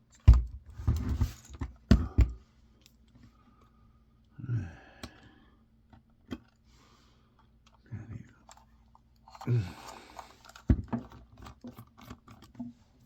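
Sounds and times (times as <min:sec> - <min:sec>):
plastic parts handled: 0:08.4 - 0:12.7.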